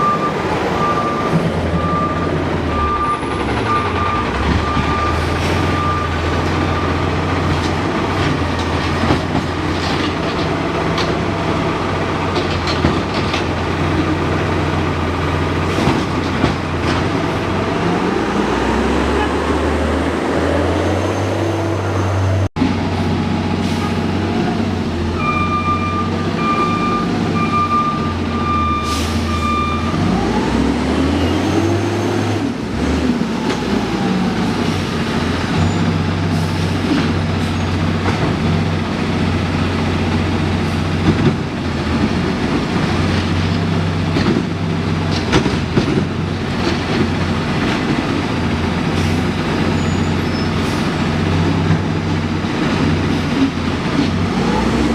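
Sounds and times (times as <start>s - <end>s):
reversing alarm beeps: 0.0s - 7.0s, 25.2s - 30.2s
truck diesel engine running: 0.0s - 20.5s.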